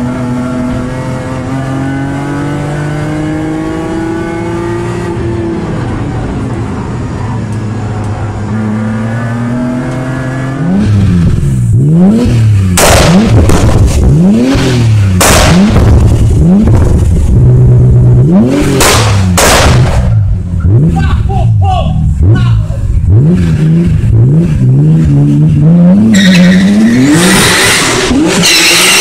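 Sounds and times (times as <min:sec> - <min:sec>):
car engine revving in blips: 0:00.0 - 0:21.0, 0:22.0 - 0:29.0
exhaust pops and bangs: 0:12.7 - 0:14.6, 0:15.2 - 0:17.4, 0:18.6 - 0:20.3.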